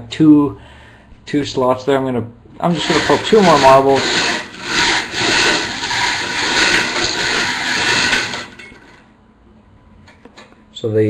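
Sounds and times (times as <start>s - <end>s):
bingo balls rattling: 2.8s - 9.1s.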